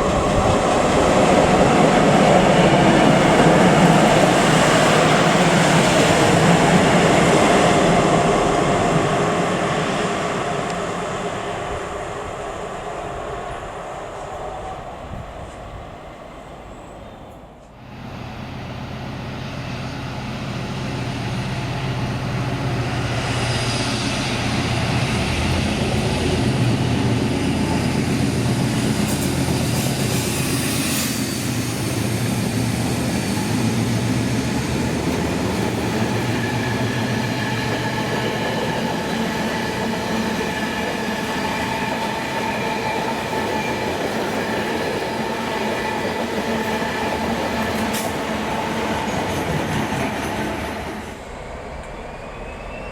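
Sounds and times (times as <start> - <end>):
train rolling on rails: 0.0 - 52.9
high wheel squeal: 51.8 - 52.9.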